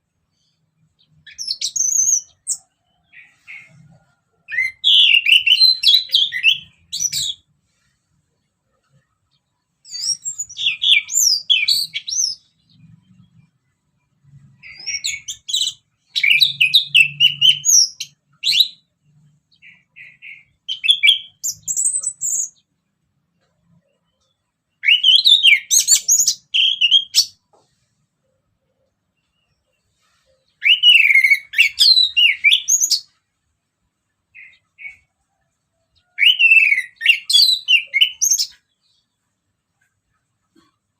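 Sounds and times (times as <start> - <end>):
thrush singing whistled phrases: 4.5 - 7.5, 14.6 - 22.6, 24.8 - 27.4, 30.6 - 33.2, 36.2 - 38.6.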